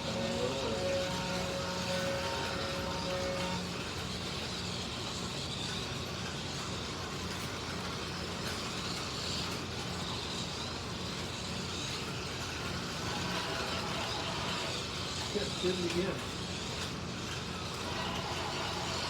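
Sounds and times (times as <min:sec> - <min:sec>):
slot cars whirring: 0:00.0 - 0:19.0.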